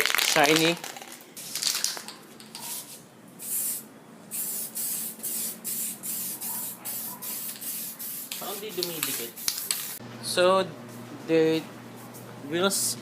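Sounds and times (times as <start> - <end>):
spray-paint can hissing: 2.5 - 10.0.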